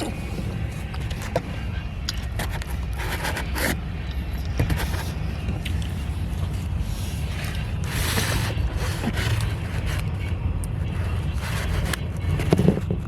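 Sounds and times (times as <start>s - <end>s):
car engine running: 0.0s - 13.0s
rustling noise: 4.7s - 13.0s.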